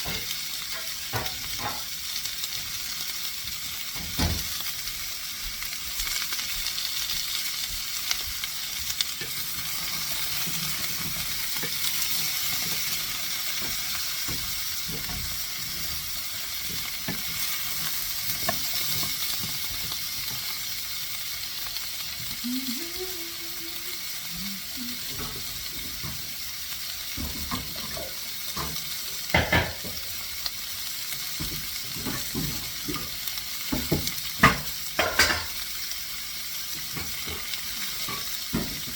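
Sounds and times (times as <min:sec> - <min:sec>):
vegetables sizzling in a pan: 0:00.0 - 0:38.9
utensil knocking in a pan: 0:29.3 - 0:30.0.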